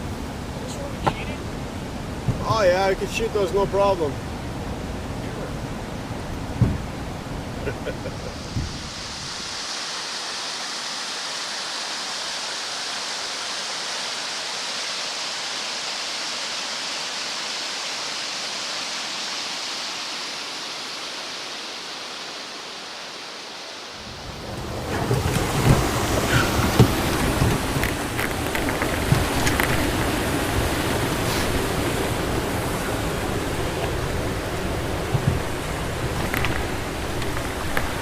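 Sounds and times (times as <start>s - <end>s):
water rushing over rapids: 0.0s - 38.0s
rough noise with sharp knocks: 6.6s - 6.9s, 24.9s - 31.6s.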